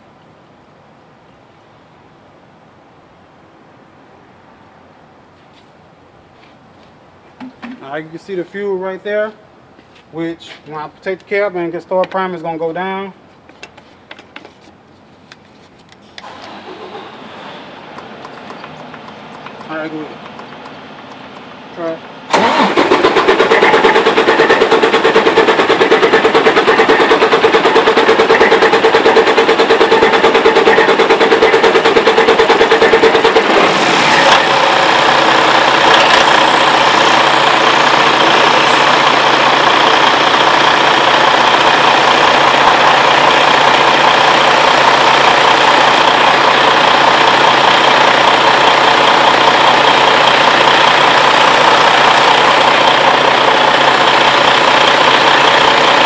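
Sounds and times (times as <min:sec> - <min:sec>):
diesel engine cranking then idling: 0:16.0 - 0:56.0.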